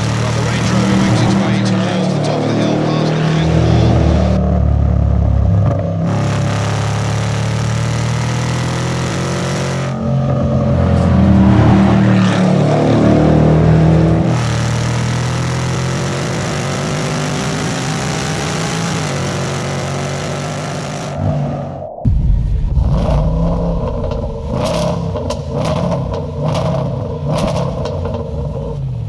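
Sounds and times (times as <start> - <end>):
car engine accelerating hard: 0.0 - 21.8, 22.5 - 29.0.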